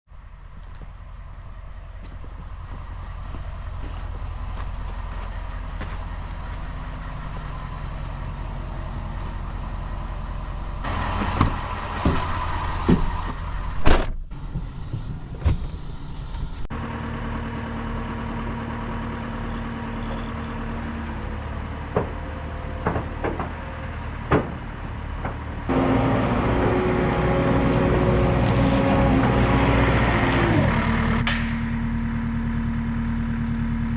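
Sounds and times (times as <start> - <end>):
heavy diesel engine running: 0.1 - 33.9
sharp knocks and clanks: 11.2 - 15.6, 21.9 - 23.7, 24.3 - 25.5, 31.2 - 32.0.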